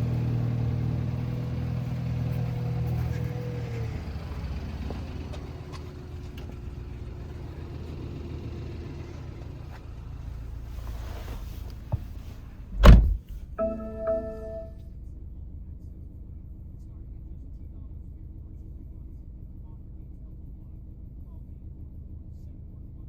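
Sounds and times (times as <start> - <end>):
car engine idling: 0.0 - 13.3
heavy thump: 12.8 - 13.2
short chime-like tone: 13.6 - 14.8.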